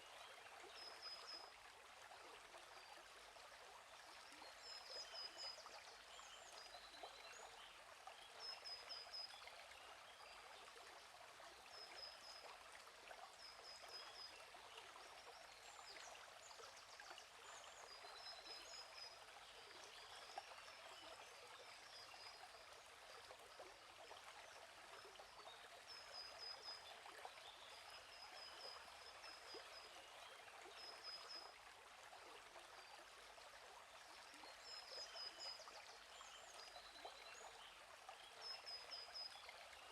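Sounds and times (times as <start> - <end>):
small stream flowing: 0.0 - 39.9.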